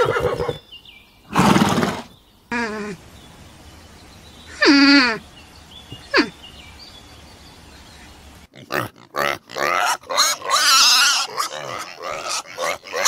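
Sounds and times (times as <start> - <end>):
pigs grunting: 8.5 - 13.0.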